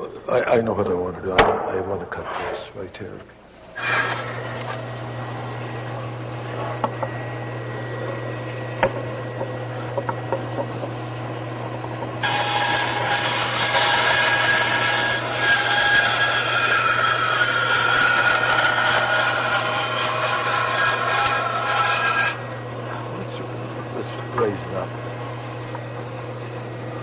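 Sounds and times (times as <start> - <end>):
saw blade cutting wood: 3.6 - 4.9, 12.2 - 22.5
power saw motor hum: 3.6 - 27.0.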